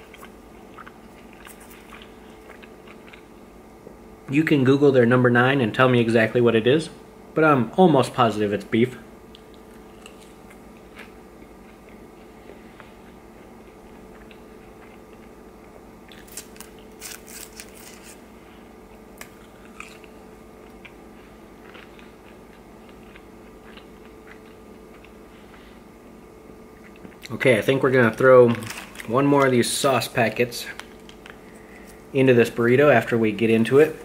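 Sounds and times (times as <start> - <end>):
person chewing fries: 0.0 - 3.6, 9.3 - 26.1, 26.7 - 27.4
faint steady hum: 0.0 - 34.0.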